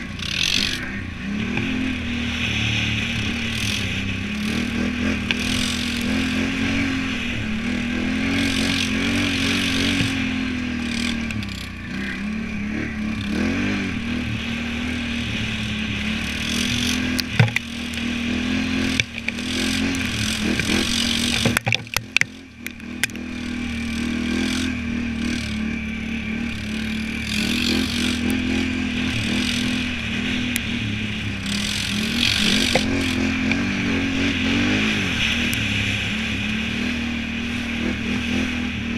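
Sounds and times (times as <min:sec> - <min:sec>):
atv engine revving: 0:00.0 - 0:38.9
sharp knocks: 0:17.3 - 0:17.7.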